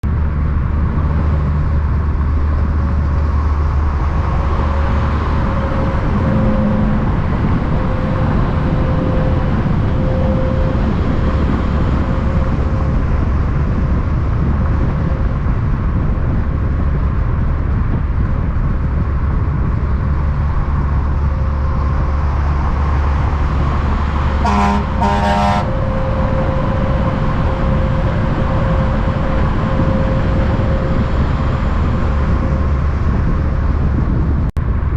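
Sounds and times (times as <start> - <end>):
truck engines rumbling: 0.0 - 34.9
short horn toots: 24.4 - 26.7.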